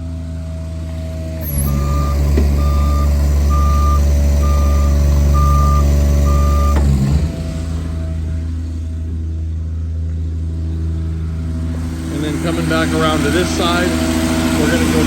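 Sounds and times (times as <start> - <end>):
truck engine and hydraulics drone: 0.0 - 15.0
truck warning alarm beeps: 1.4 - 6.9.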